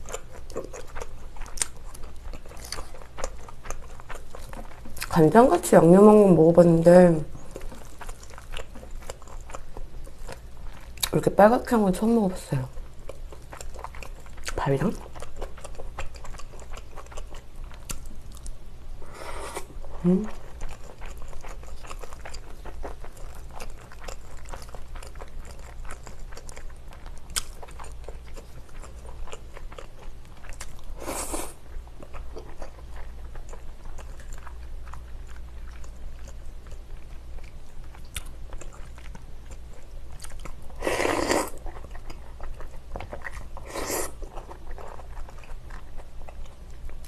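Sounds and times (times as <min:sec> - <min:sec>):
chewing rice: 0:00.0 - 0:11.3, 0:12.7 - 0:18.6, 0:19.7 - 0:47.0.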